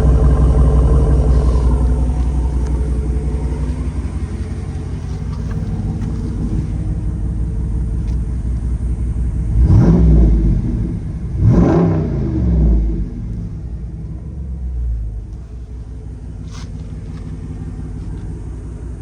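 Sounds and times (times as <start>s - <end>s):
engine revving: 0.0s - 7.1s, 9.4s - 15.4s
engine idling with deep rumble: 0.0s - 19.0s.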